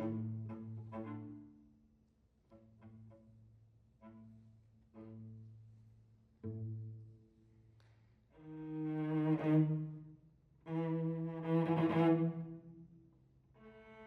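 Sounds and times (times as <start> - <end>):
cello bowed notes: 0.0 - 1.7, 2.5 - 7.3, 8.4 - 12.8.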